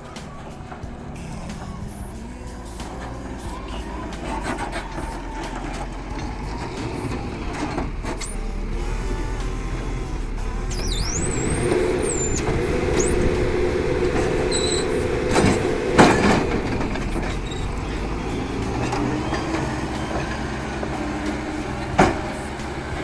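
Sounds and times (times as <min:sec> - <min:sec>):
large engine running: 0:00.0 - 0:23.0
knocks: 0:18.9 - 0:22.8.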